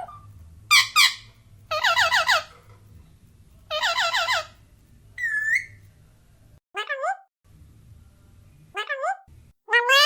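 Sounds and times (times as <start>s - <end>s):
parrot calling: 0.0s - 2.6s, 3.7s - 4.6s, 5.2s - 5.8s, 8.7s - 10.0s
faint low hum: 0.0s - 6.6s, 7.5s - 9.6s.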